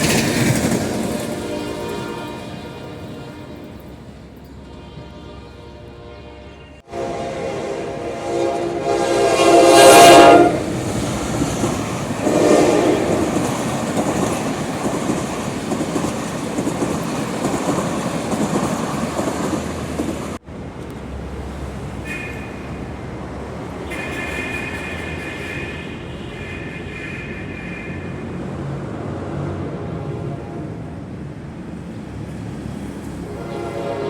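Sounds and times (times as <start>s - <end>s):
train wheels clattering on rails: 0.0s - 2.4s, 10.5s - 20.4s, 21.9s - 26.1s
locomotive horn: 1.0s - 10.9s, 12.1s - 13.5s, 22.0s - 22.9s, 23.8s - 28.6s, 29.3s - 30.9s, 33.2s - 34.0s.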